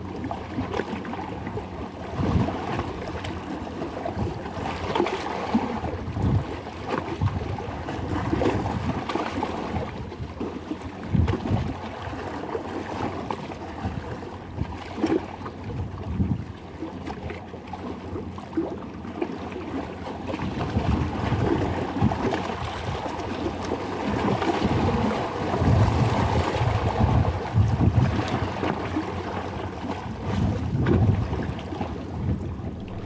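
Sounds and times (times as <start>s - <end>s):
sea water washing: 0.0s - 33.0s
wind gusting on microphone: 24.1s - 28.5s, 30.1s - 33.0s.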